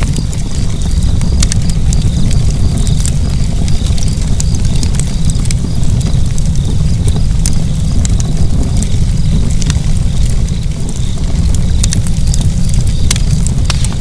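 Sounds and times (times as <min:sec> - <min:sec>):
fire crackling in a fireplace: 0:00.0 - 0:14.0
low rumble: 0:00.0 - 0:14.0.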